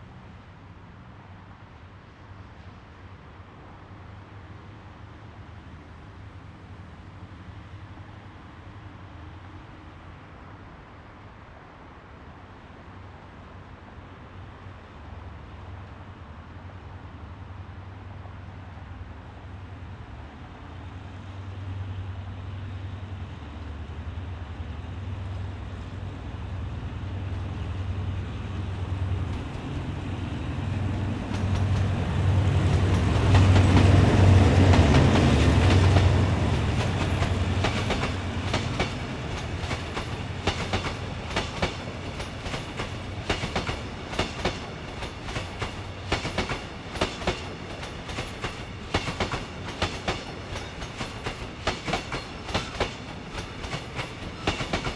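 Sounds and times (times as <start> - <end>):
locomotive engine hum: 17.4 - 54.9
train wheels clacking over joints: 31.2 - 54.9.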